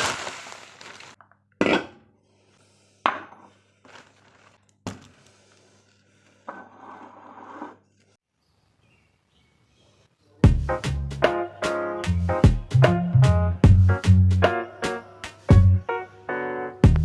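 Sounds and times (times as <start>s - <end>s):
scraping or rubbing: 6.4s - 8.2s.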